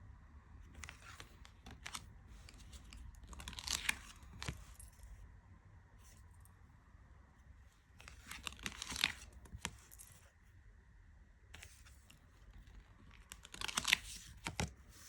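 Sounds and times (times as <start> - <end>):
cards clicking and sliding: 0.8 - 5.0, 8.0 - 10.2, 11.6 - 15.0.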